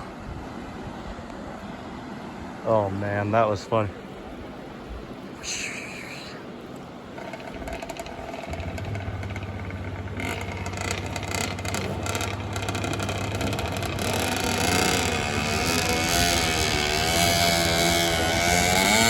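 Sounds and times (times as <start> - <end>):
vehicle engine approaching: 7.1 - 19.0.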